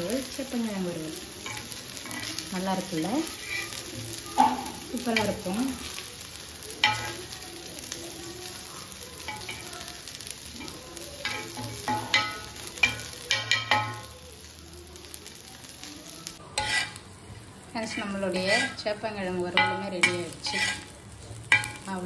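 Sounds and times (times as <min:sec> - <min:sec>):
slices sizzling in oil: 0:00.0 - 0:22.0
spatula scraping a griddle: 0:01.3 - 0:07.3, 0:16.4 - 0:17.1, 0:17.8 - 0:22.0.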